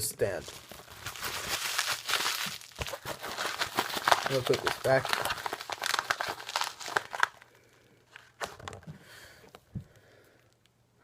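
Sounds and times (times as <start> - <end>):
plastic packaging crinkling: 0.2 - 8.9.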